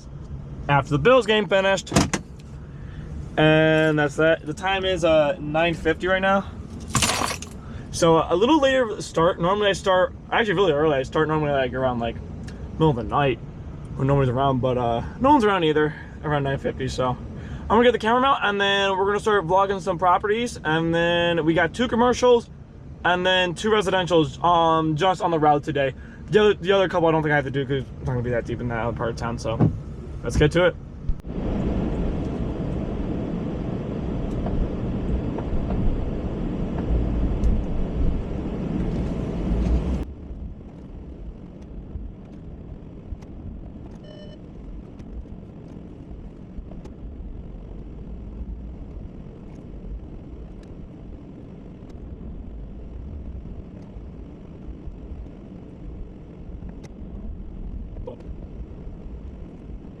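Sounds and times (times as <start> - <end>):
short beep: 44.0 - 44.4.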